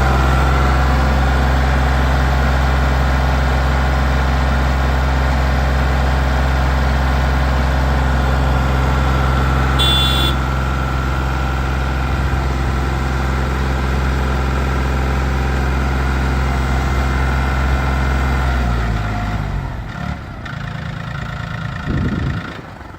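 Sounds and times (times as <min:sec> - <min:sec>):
tractor diesel engine idling: 0:00.0 - 0:22.9.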